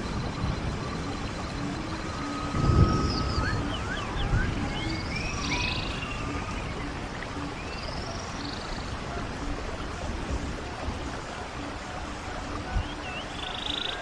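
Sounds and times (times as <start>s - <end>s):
low repeating note: 0.0s - 8.2s
birds chirping: 0.0s - 14.0s
stream of running water: 0.0s - 14.0s.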